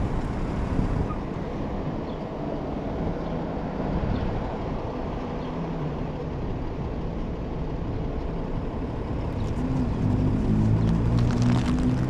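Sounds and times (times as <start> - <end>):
wind rumble on microphone: 0.0 - 1.9, 3.0 - 5.5
e-bike road noise: 0.0 - 12.0.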